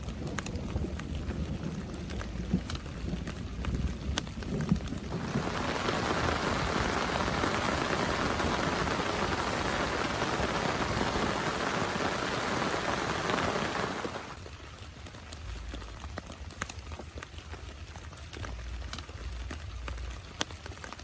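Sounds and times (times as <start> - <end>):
heavy rain falling: 0.0 - 14.4.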